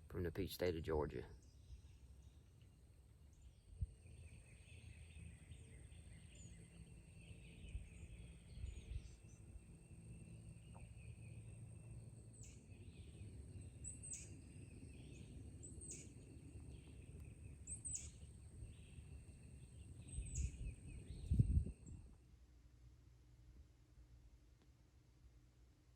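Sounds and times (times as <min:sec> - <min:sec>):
low rumble on microphone: 0:03.4 - 0:11.8, 0:18.4 - 0:22.2.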